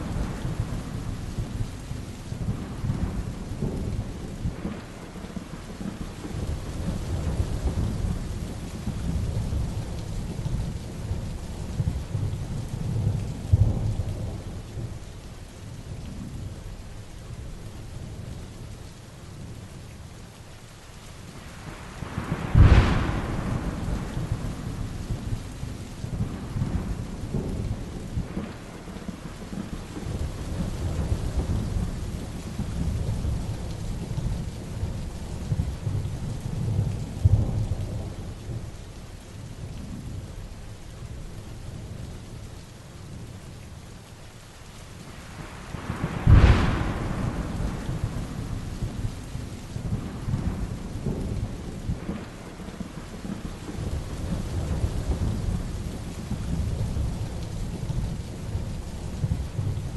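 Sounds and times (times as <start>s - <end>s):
thunder rumbling: 0.0s - 15.0s, 21.5s - 38.8s, 45.1s - 59.9s
heavy rain falling: 0.0s - 59.9s
sharp thunderclap: 22.0s - 34.5s, 45.4s - 58.2s.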